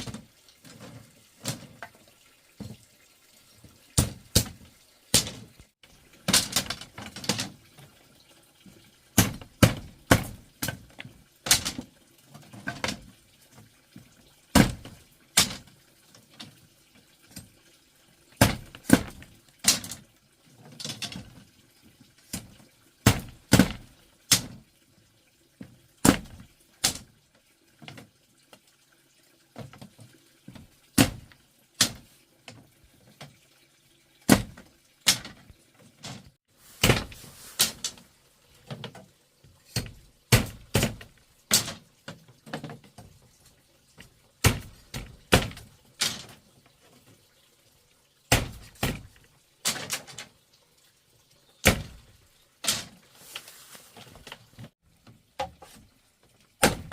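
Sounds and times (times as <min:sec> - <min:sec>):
running or splashing water: 0:00.0 - 0:56.9
sharp knocks and clatters: 0:04.0 - 0:07.9, 0:34.3 - 0:43.2.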